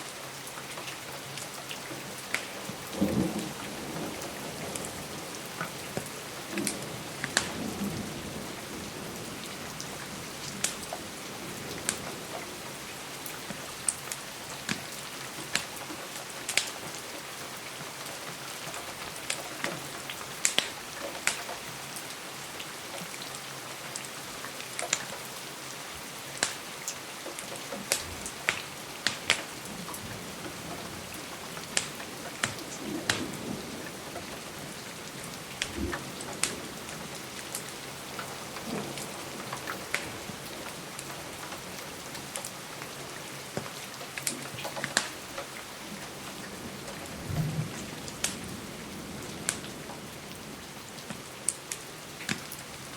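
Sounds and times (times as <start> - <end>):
rain on a window: 0.0 - 52.9
distant thunder rumble: 2.7 - 13.0, 46.2 - 50.7
wood fire crackling: 27.3 - 34.3, 35.4 - 42.9, 43.5 - 49.9.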